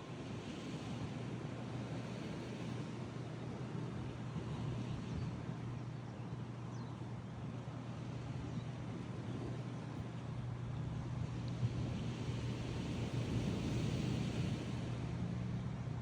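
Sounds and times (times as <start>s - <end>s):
constant low hum: 0.0s - 16.0s
wind on microphone: 8.4s - 16.0s
ocean surf: 11.0s - 16.0s.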